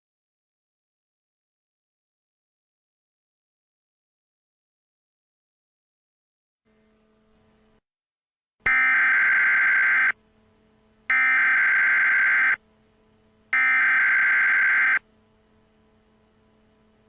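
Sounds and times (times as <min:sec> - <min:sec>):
buzzing digital data tones: 0:08.7 - 0:10.2, 0:11.1 - 0:15.2
faint steady hum: 0:08.7 - 0:17.0.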